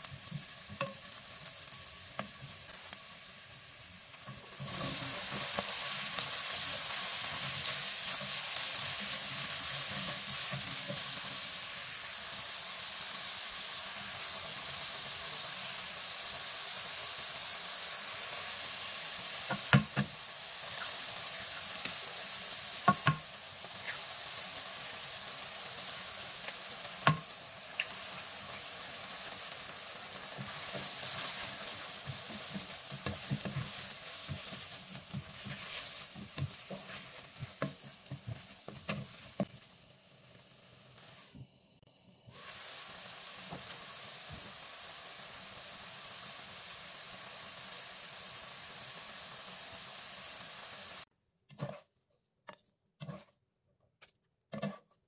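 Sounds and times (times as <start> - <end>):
eggs sizzling in a frying pan: 0.0 - 51.9
spatula scraping and tapping pan: 0.3 - 1.1, 22.8 - 24.0, 27.0 - 28.0, 30.3 - 39.6, 51.5 - 51.9, 52.5 - 53.4, 54.0 - 55.0.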